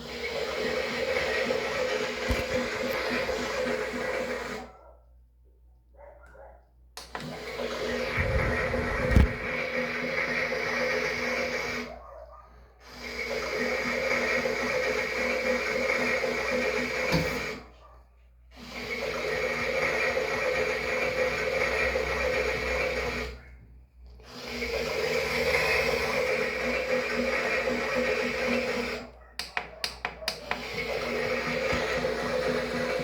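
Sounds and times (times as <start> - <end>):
small drum motor whirring: 0.0 - 4.6, 7.1 - 11.9, 18.7 - 23.4, 24.2 - 33.0.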